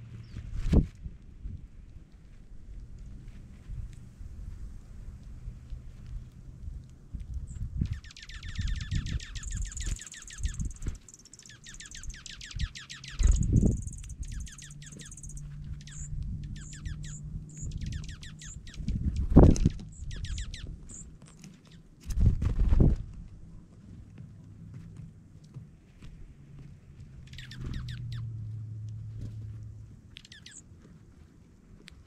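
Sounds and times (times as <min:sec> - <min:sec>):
birds chipping and trilling: 0:07.3 - 0:22.0, 0:27.1 - 0:30.7.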